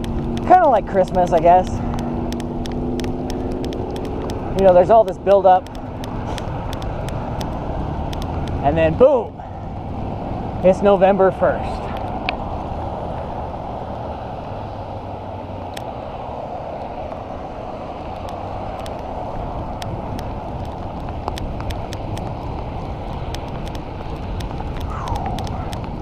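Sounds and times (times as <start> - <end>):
sharp ticks: 0.0 - 8.7, 18.1 - 26.0
bicycle road noise: 0.0 - 26.0
wind rush: 11.8 - 26.0.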